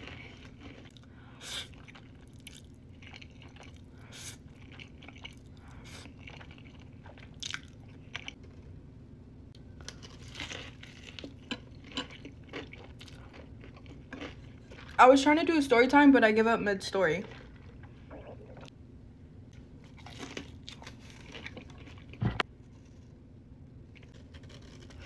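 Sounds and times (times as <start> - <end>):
crunching bites and chewing: 0.0 - 8.7, 9.8 - 15.0, 19.8 - 23.2, 23.9 - 25.0
steady low hum: 0.0 - 25.0.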